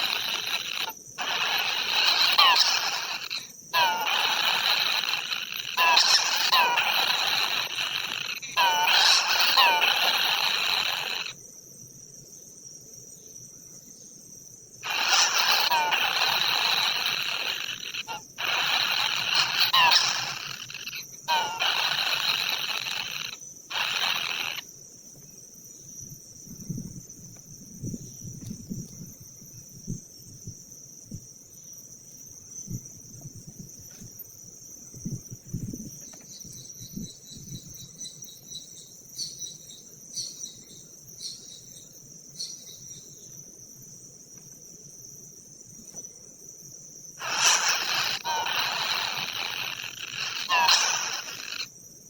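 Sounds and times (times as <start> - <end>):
high ticking chirps: 0.0 - 11.4, 14.8 - 24.8, 32.5 - 43.4, 46.9 - 51.8
insects droning: 0.0 - 52.0.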